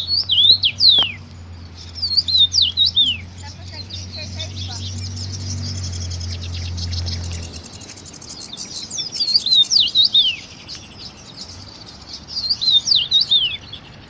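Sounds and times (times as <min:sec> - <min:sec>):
bird whistled calls sweeping down: 0:00.0 - 0:01.2, 0:01.9 - 0:10.7, 0:12.3 - 0:13.6
low steady hum: 0:00.0 - 0:08.9
small birds twittering: 0:00.0 - 0:14.0.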